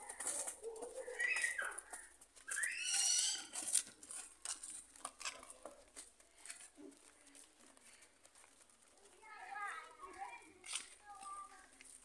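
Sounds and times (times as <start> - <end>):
footsteps on concrete: 0.0 - 12.0
hooves clicking on concrete: 0.0 - 12.0
bird high calls: 1.0 - 3.6.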